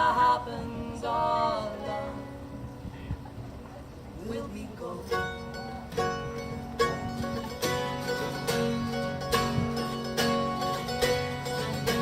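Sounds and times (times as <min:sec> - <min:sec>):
guitar chords strummed: 0:05.1 - 0:12.0.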